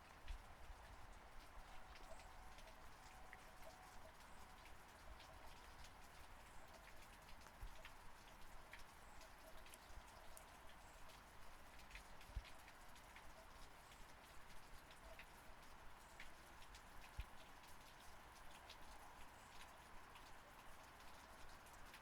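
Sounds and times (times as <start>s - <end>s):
faint steady rain: 0.0s - 22.0s.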